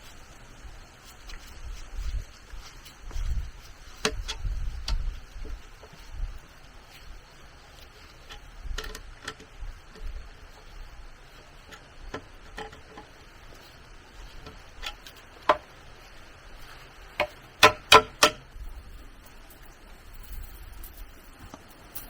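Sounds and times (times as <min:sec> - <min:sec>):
sharp knocks and taps: 0:17.2 - 0:18.4.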